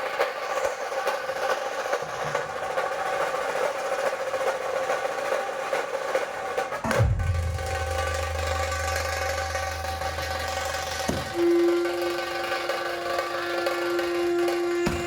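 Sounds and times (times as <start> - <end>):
dhol and tasha drums beating: 0.0 - 15.0
deep low sliding tone: 6.8 - 15.0.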